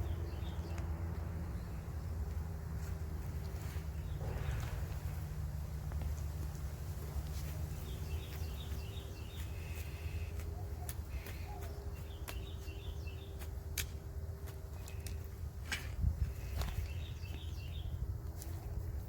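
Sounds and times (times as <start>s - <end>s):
songbird chirping: 0.0s - 15.4s, 16.1s - 19.0s
low rumble: 3.2s - 8.3s.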